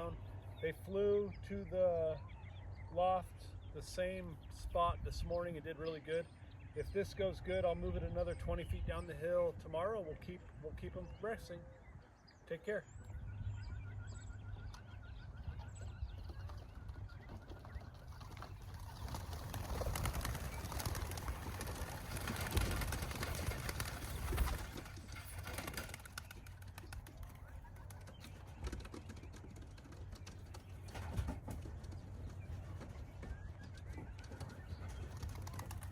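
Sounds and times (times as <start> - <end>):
pigeons cooing: 13.7 - 35.9.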